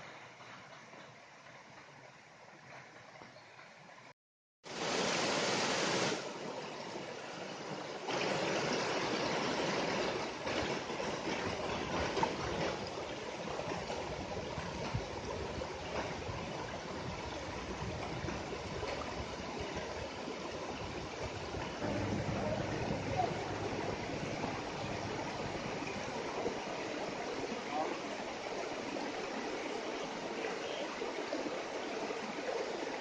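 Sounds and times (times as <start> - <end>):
stream of running water: 0.0 - 33.0
low steady rumble: 21.6 - 27.5.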